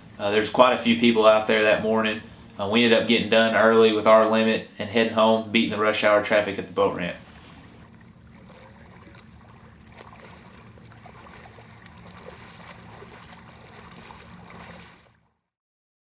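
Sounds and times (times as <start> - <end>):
low steady water rumble: 0.0 - 15.5
small clicks and splashes: 7.4 - 15.3.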